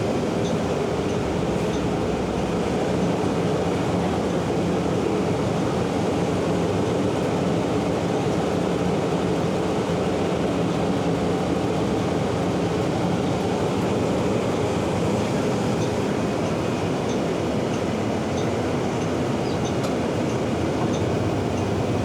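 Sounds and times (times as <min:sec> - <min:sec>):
bus engine and road noise: 0:00.0 - 0:22.0.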